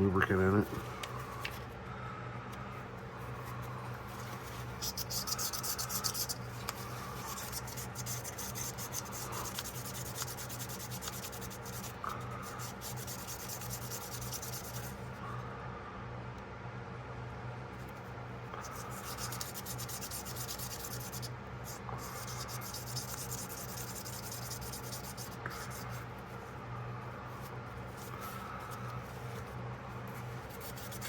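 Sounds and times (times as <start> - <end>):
low steady hum: 0.0 - 31.0
scrubbing strokes on a pocketknife: 4.1 - 15.0, 18.6 - 26.3, 30.1 - 31.0.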